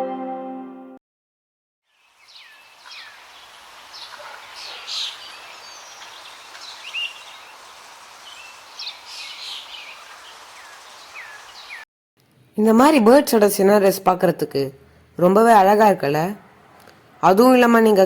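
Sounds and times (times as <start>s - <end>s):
ambient music: 0.0s - 1.0s
birds chirping and calling: 8.3s - 11.8s.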